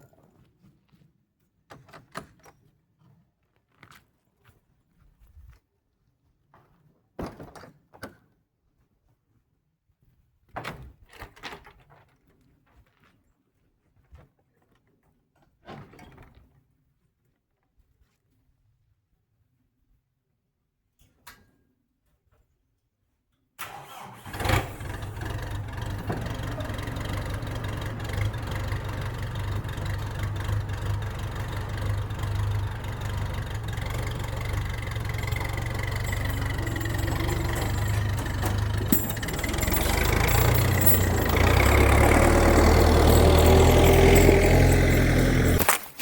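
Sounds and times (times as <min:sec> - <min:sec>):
engine running: 0:23.9 - 0:45.7.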